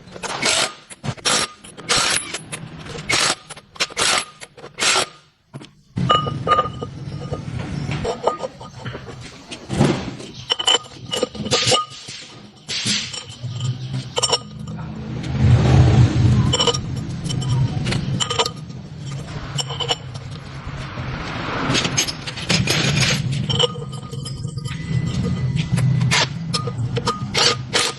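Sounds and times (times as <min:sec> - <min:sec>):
metal tools clinking and scraping: 0:00.0 - 0:27.9
low rumble: 0:13.5 - 0:27.4.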